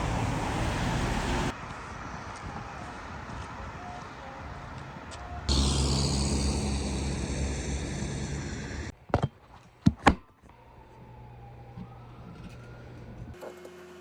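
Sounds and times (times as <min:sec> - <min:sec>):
loud rumble and hiss: 0:05.5 - 0:08.9.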